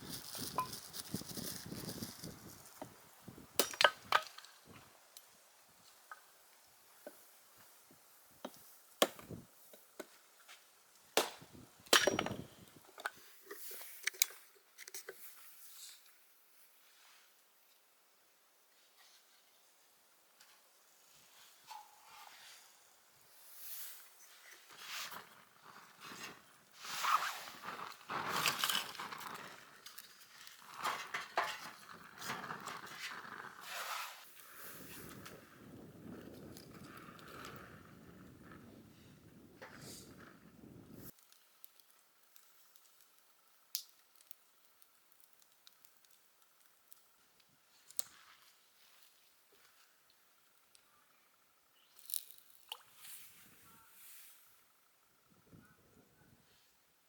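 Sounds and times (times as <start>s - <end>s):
rustling with light clinks: 0.1s - 2.8s
wood being chopped: 3.6s - 4.4s, 9.0s - 9.4s, 11.2s - 12.5s.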